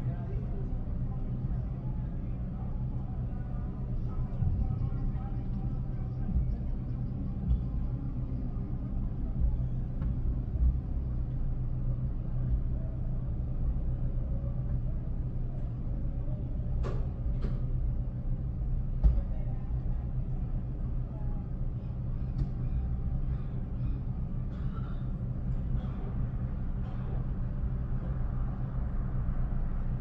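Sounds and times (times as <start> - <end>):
low engine rumble: 0.0 - 30.0.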